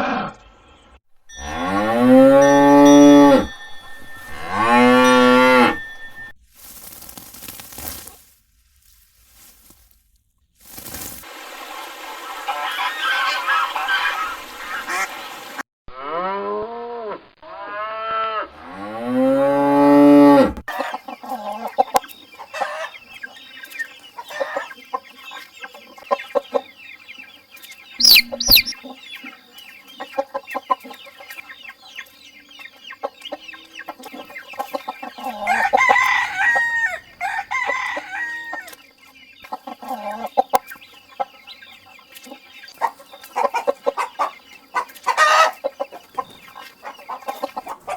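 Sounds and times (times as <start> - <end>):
chickens cackling: 0.0 - 8.1, 11.7 - 15.6, 19.4 - 47.9
rooster crowing: 1.4 - 6.3, 35.2 - 38.8
chickens clucking: 11.7 - 15.6, 20.7 - 47.9
chicken squawks: 12.2 - 15.2, 28.0 - 28.9, 34.2 - 38.8, 42.8 - 47.9.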